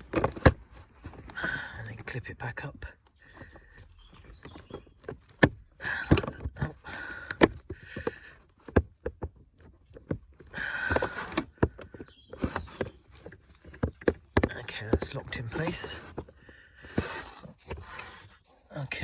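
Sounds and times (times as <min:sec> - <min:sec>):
plastic rubbing and scraping: 0:00.0 - 0:19.0
plastic cover clicks and knocks: 0:04.3 - 0:17.1.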